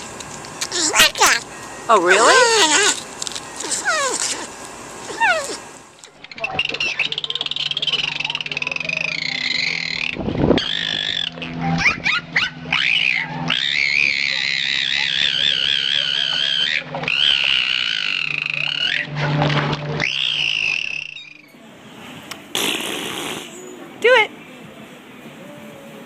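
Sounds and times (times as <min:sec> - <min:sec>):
animal giving wavering calls: 0:00.6 - 0:03.0, 0:03.6 - 0:21.5.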